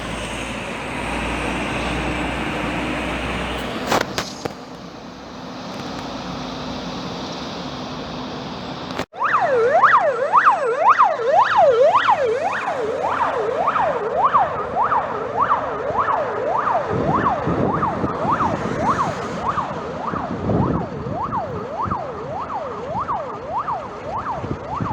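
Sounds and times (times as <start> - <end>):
fire engine siren yelping: 0.0 - 24.9
steady rushing noise: 15.9 - 21.4.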